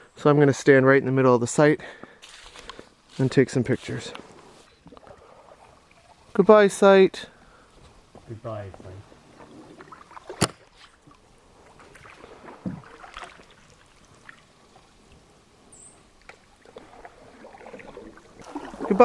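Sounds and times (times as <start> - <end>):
paddle dips and water splashes: 4.3 - 6.4, 9.2 - 15.2, 16.2 - 19.0.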